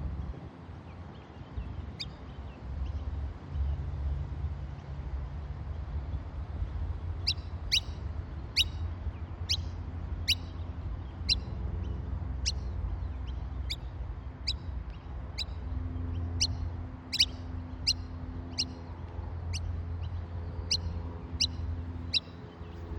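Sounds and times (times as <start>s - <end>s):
bird chirping sharply: 7.2s - 7.9s, 16.4s - 18.7s.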